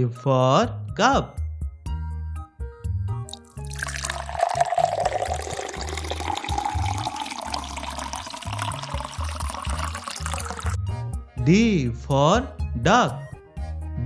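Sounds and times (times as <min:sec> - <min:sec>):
background music with bass line: 0:00.0 - 0:14.0
liquid pouring into a cup: 0:03.3 - 0:10.8.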